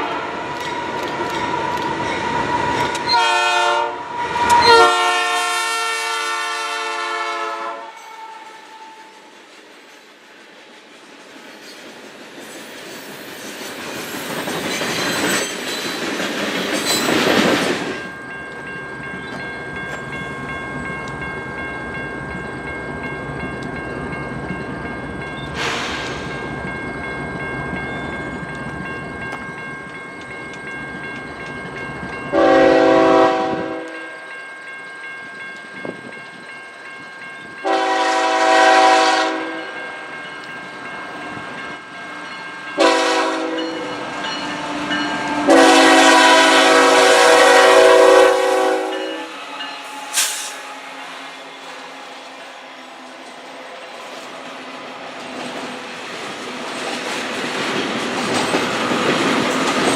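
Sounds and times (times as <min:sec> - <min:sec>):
train cars rumbling: 0:00.0 - 0:59.9
locomotive horn blasts: 0:03.1 - 0:09.1, 0:32.3 - 0:34.1, 0:37.6 - 0:39.8, 0:42.8 - 0:44.0, 0:44.6 - 0:50.5.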